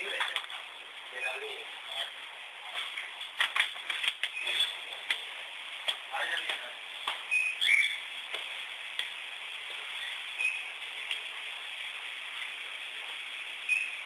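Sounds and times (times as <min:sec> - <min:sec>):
steady hiss: 0:00.0 - 0:14.0
bird chirping: 0:07.3 - 0:08.1, 0:10.0 - 0:10.7.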